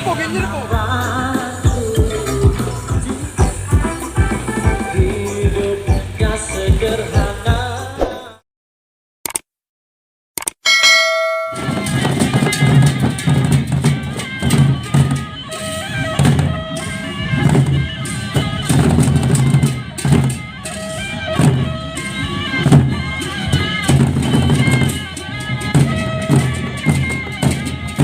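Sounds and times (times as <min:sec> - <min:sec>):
big drums beating: 0:00.7 - 0:07.7, 0:11.2 - 0:28.0
held tone: 0:10.6 - 0:12.1
gongs: 0:10.7 - 0:27.2.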